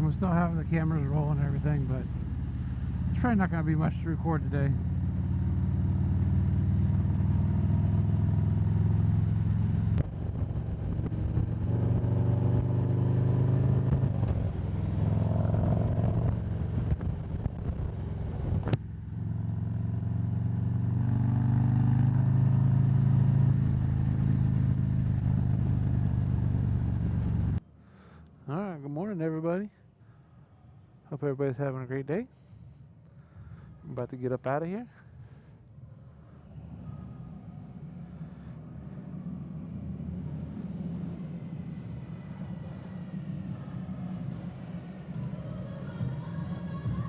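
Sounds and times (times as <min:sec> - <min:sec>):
motorcycle engine running: 0:00.0 - 0:27.6
wind noise: 0:10.0 - 0:12.8, 0:15.7 - 0:18.8.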